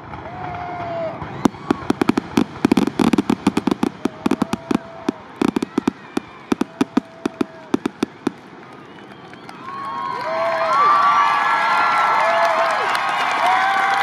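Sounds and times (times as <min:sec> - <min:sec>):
fireworks barrage of bangs: 0:00.0 - 0:09.1.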